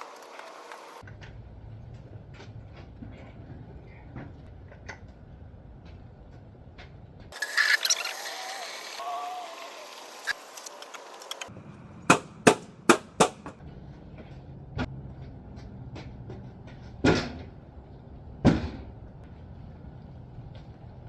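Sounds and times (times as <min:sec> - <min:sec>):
steady low rumble: 0:13.6 - 0:21.0.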